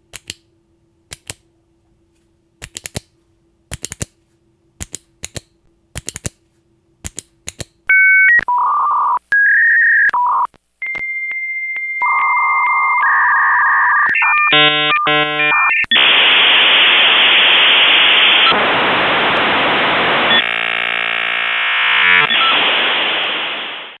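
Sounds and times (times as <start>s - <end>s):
dial-up modem tones and static: 7.9s - 24.0s.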